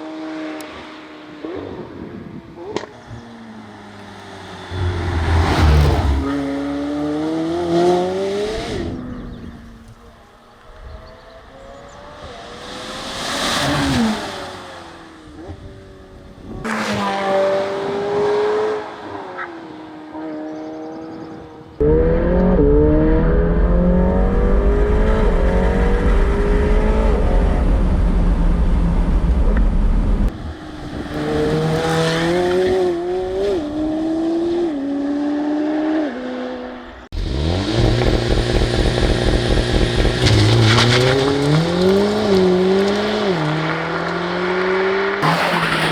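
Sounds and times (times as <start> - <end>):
car passing by: 3.8 - 8.2, 11.8 - 15.2
car engine accelerating hard: 4.1 - 9.4, 21.8 - 45.9.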